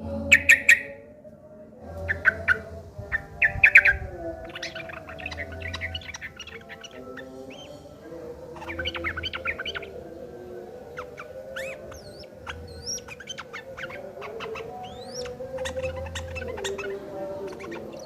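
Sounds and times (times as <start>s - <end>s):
bulbuls chattering: 0.0s - 1.1s, 1.8s - 18.0s
low background tones: 0.0s - 18.0s
whistled bird notes: 0.2s - 1.0s, 2.0s - 10.1s, 10.8s - 18.0s.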